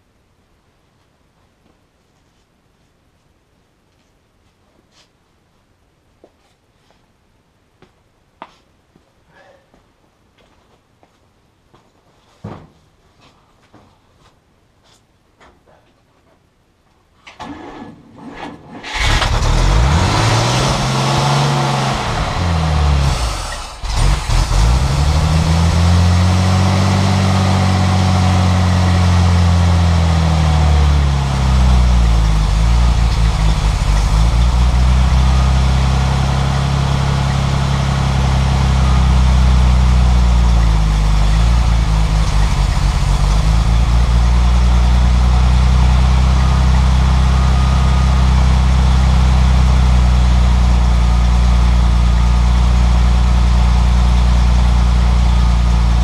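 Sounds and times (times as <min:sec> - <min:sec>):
engine starting and revving: 0:17.4 - 0:31.1
engine cranking: 0:18.8 - 0:20.0, 0:23.1 - 0:25.3.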